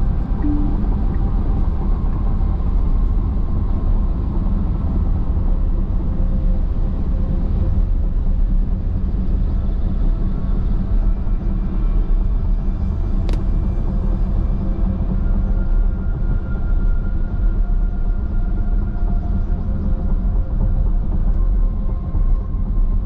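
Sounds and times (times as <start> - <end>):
car tyres and engine rumble: 0.0 - 18.8.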